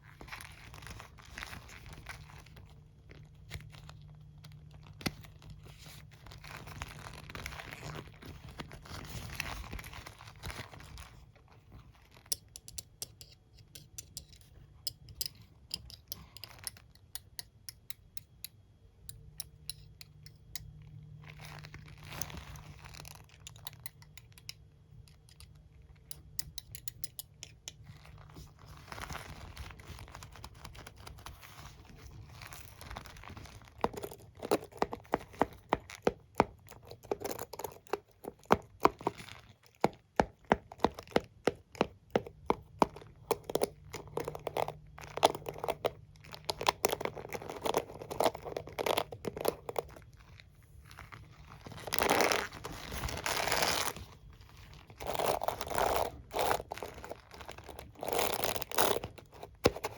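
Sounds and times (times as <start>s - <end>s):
comb and brush tapping and clicking: 12.1s - 20.8s, 23.2s - 31.3s, 32.4s - 50.4s.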